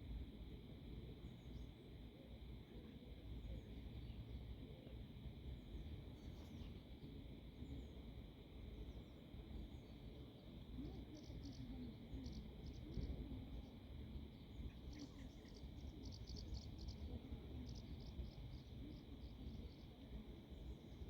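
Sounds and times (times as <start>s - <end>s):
insects buzzing in grass: 6.0s - 21.0s
wind rumble on microphone: 10.8s - 21.0s.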